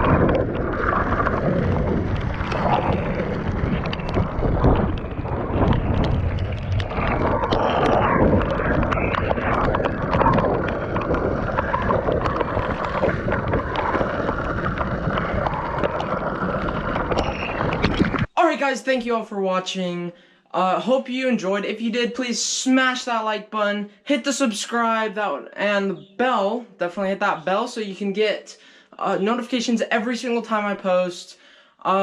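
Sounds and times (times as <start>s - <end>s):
longboard wheels on wet pavement: 0.0s - 18.3s
wind buffeting microphone: 0.0s - 18.3s.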